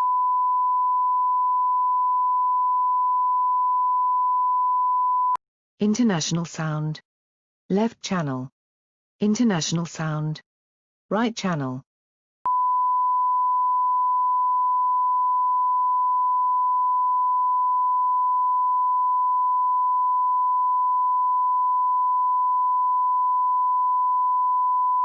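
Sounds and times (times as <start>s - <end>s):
sine-wave test tone: 0.0s - 5.4s, 12.5s - 25.0s.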